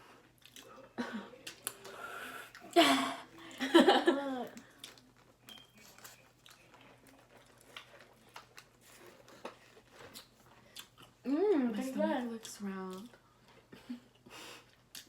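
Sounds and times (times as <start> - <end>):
food wrappers crinkling: 4.6 - 11.1.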